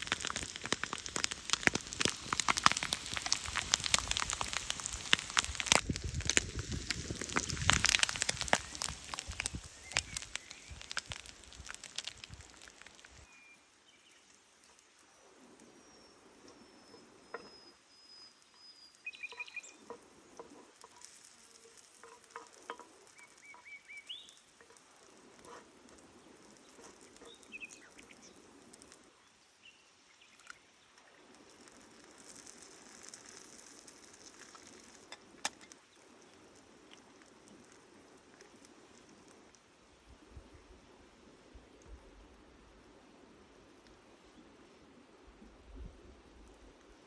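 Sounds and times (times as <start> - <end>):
campfire crackling: 0.0 - 13.3, 19.0 - 29.2, 30.0 - 40.5
soft sizzling: 0.0 - 13.3, 19.6 - 29.0, 30.2 - 39.6
bird chirps: 16.7 - 19.8.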